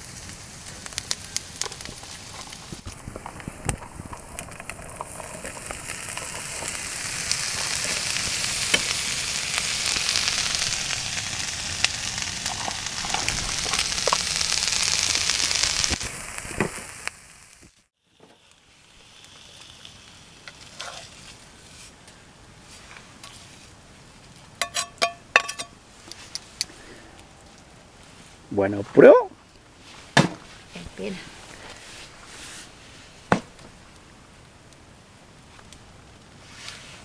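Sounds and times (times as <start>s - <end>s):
popping: 0.0s - 21.2s
food sizzling over a campfire: 0.0s - 37.0s.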